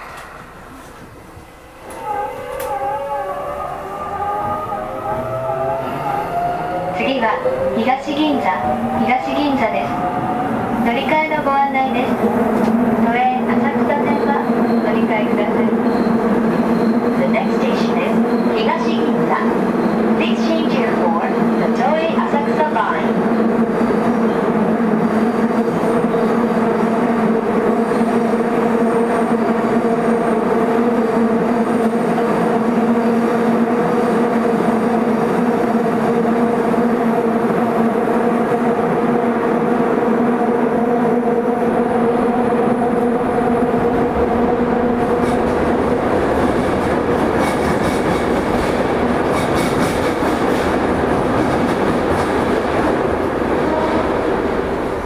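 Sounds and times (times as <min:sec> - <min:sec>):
train wheels rumbling on rails: 0:00.0 - 0:03.1, 0:03.8 - 0:55.0
electric train motor tones: 0:00.0 - 0:07.8.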